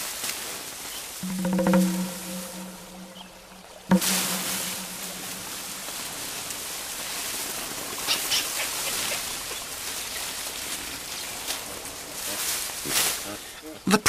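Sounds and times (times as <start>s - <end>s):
river water rushing: 1.2s - 8.0s.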